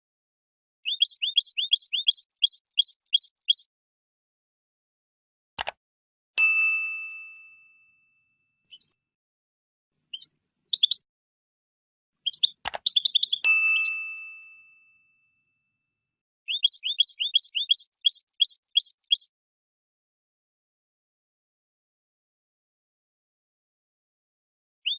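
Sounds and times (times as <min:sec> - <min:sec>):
goldfinch chirping and twittering: 0:00.8 - 0:03.6, 0:10.1 - 0:11.0, 0:12.2 - 0:14.0, 0:16.5 - 0:19.3
sharp click: 0:05.6 - 0:05.8, 0:12.3 - 0:13.3
bell-like dings: 0:06.4 - 0:08.6, 0:13.4 - 0:15.7.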